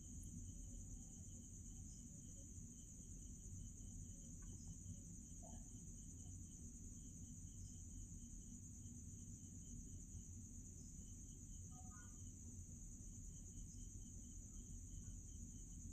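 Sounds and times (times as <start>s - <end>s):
high-pitched insect drone: 10.7s - 15.9s
faint chirp: 11.5s - 12.4s.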